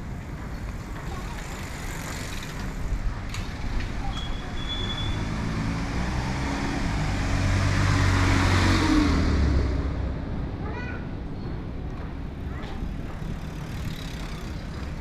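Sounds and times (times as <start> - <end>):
vehicle driving past: 4.8 - 10.2.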